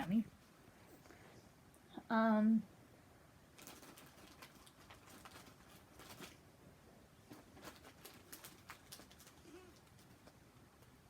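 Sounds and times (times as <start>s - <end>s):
plastic wrapper crinkling: 3.5s - 6.4s, 7.3s - 10.4s.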